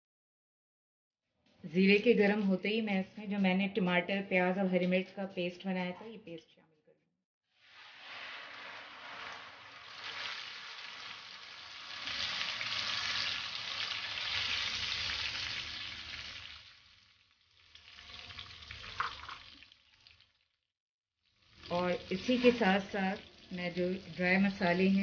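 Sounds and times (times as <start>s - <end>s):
paste sizzling in hot oil: 7.5s - 19.8s, 21.3s - 25.0s.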